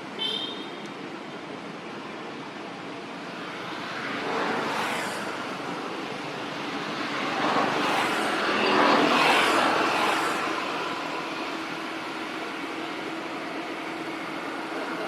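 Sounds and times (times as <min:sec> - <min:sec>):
vehicle passing by: 0:03.9 - 0:11.8.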